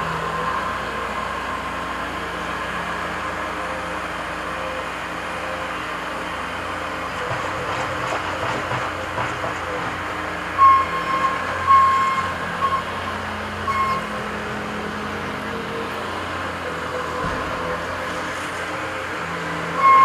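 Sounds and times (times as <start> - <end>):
construction machine engines running: 0.0 - 20.0
short high-pitched beeps: 10.6 - 12.9, 13.7 - 14.1, 19.8 - 20.0.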